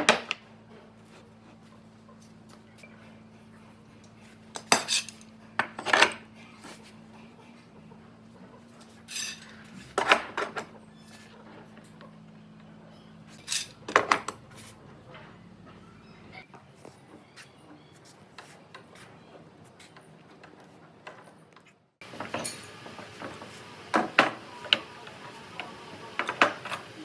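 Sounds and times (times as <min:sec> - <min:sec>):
hard objects clinking and knocking: 0:22.0 - 0:27.0.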